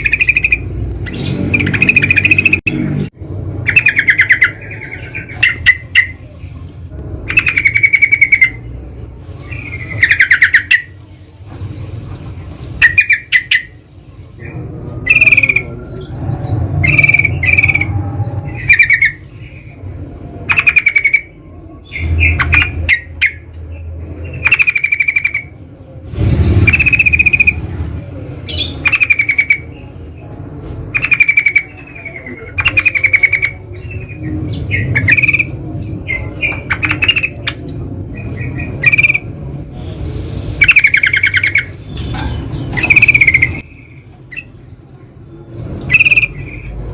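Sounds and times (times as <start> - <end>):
bird chattering calls: 0.0 - 2.9, 3.6 - 6.2, 7.3 - 8.7, 9.4 - 11.0, 12.8 - 13.8, 14.4 - 16.1, 16.8 - 19.8, 20.5 - 23.5, 24.3 - 27.7, 28.4 - 29.7, 30.9 - 39.4, 40.6 - 44.6, 45.8 - 46.8
low rumble: 14.0 - 20.4, 25.6 - 28.8.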